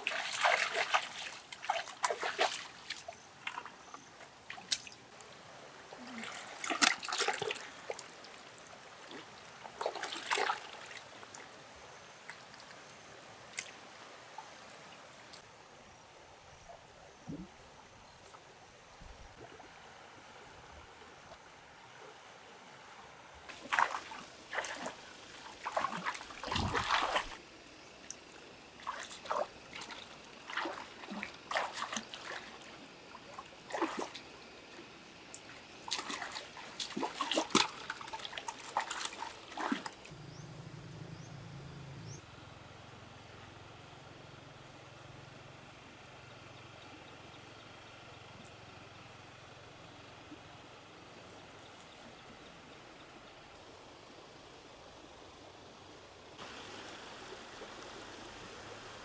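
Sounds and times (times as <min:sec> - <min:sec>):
water splashing and sloshing: 0:00.0 - 0:15.6, 0:17.2 - 0:40.5.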